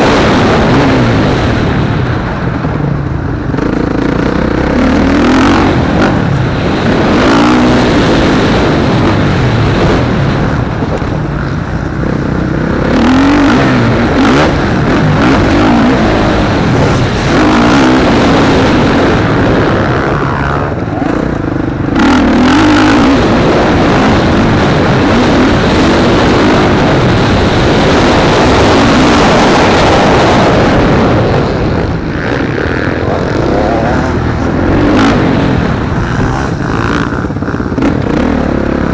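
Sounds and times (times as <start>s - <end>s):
motocross bike engines revving: 0.0s - 38.9s.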